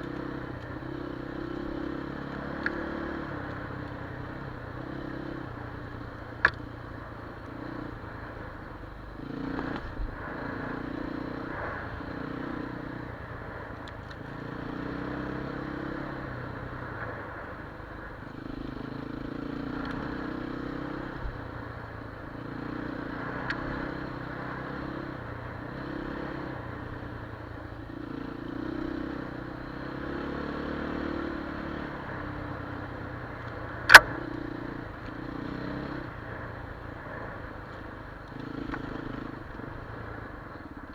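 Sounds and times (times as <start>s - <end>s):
motorcycle engine revving: 0.0s - 40.9s
small sharp click: 2.3s - 3.6s, 6.4s - 6.6s, 19.8s - 20.1s, 23.4s - 23.7s, 33.4s - 34.4s.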